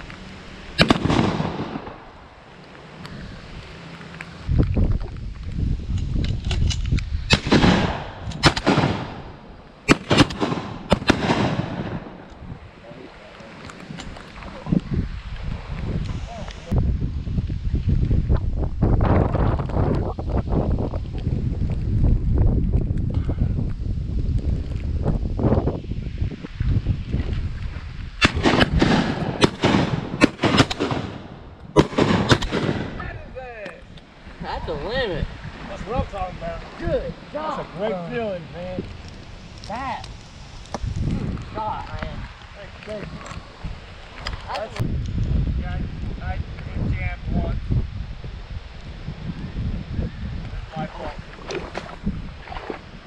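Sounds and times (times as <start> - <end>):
shotgun shots with echo: 0.8 - 2.0, 7.3 - 12.2, 28.2 - 33.0.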